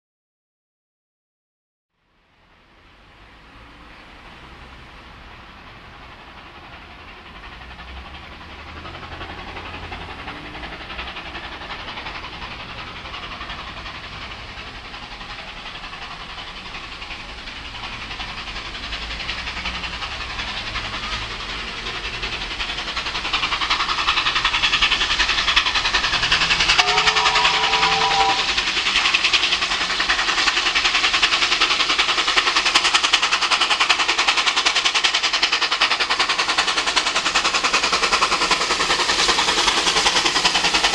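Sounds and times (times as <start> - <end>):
steam locomotives running: 2.1 - 40.9
steam locomotive chord whistle: 24.5 - 29.9.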